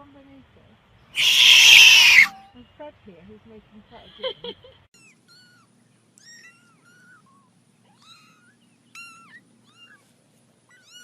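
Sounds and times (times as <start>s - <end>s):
cat mewing: 1.2s - 2.3s.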